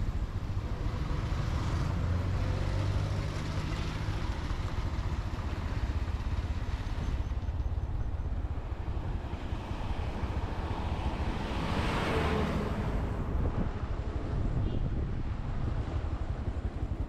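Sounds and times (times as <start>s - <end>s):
wind on microphone: 8.9s - 17.0s.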